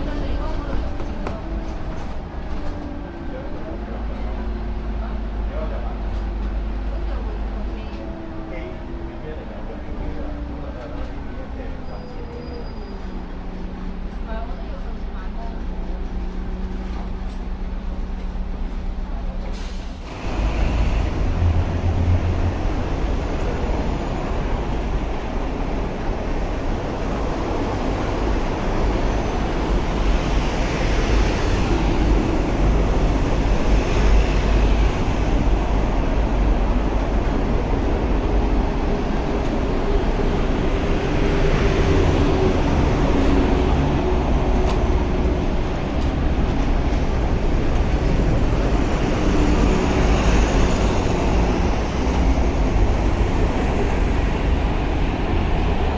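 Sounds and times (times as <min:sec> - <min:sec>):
bus diesel engine humming: 0:00.0 - 0:55.9
road noise: 0:00.0 - 0:55.9.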